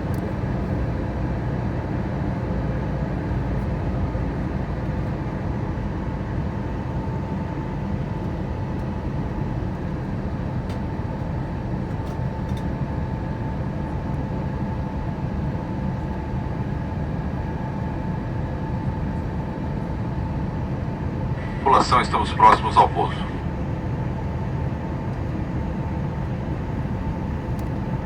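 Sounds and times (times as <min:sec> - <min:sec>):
faint steady whine: 0:21.4 - 0:23.6
aircraft engine rumble: 0:21.4 - 0:23.8.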